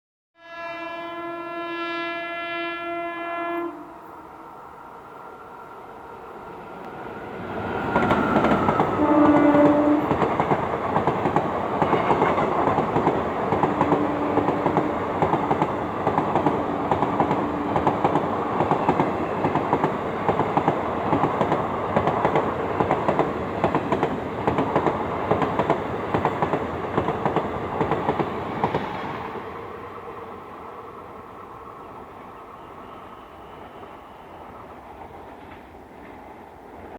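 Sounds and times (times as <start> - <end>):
train horn note: 0.4 - 4.4, 8.9 - 10.2, 11.8 - 12.5
train passing at speed: 0.5 - 36.9.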